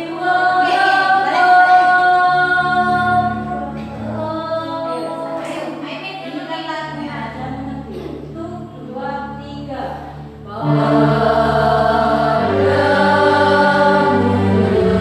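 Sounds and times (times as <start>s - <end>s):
choir singing a cappella: 0.0s - 5.8s, 10.4s - 15.0s.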